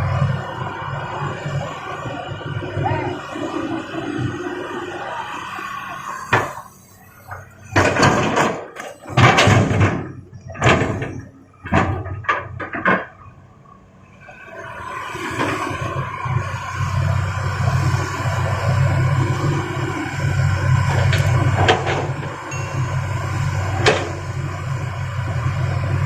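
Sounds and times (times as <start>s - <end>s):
diesel engine drone: 0.0s - 26.0s
rocks crashing into steel truck bed: 7.8s - 13.2s.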